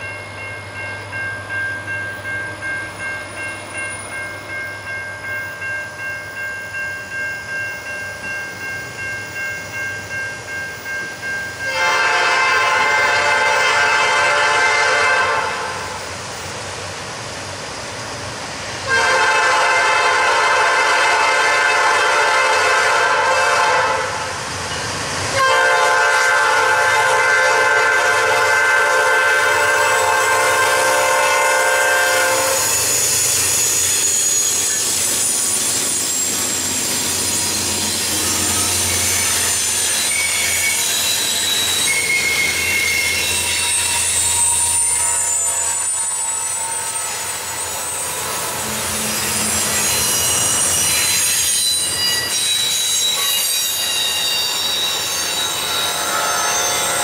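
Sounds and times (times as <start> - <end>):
locomotive air horn blasts: 11.7 - 15.9, 18.9 - 24.3, 25.4 - 32.7
high wheel squeals: 28.4 - 57.0.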